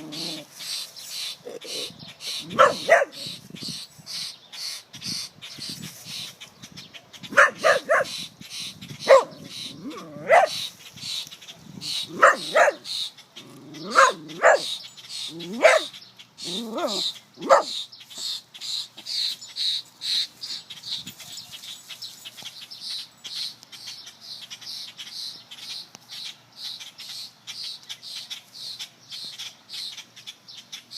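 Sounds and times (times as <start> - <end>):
small bird chirping: 0.0 - 30.9
dog barking and yipping: 1.8 - 3.4, 7.3 - 8.2, 9.0 - 10.6, 12.0 - 12.9, 13.7 - 17.8.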